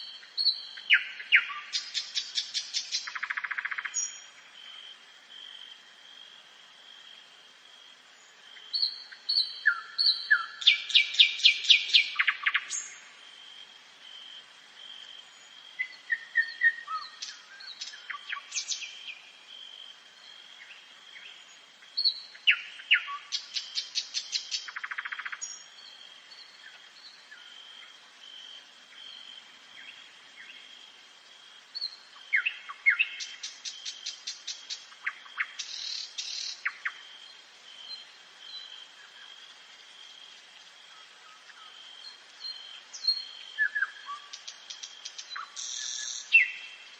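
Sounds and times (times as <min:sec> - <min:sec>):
nightingale singing: 0:00.0 - 0:04.8, 0:08.2 - 0:13.2, 0:15.2 - 0:27.8, 0:31.7 - 0:39.4, 0:40.9 - 0:46.9.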